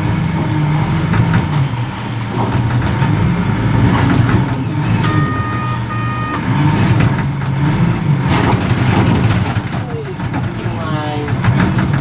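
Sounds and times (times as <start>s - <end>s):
diesel engine running under load: 0.0s - 12.0s
reverse alarm beeps: 4.9s - 6.9s.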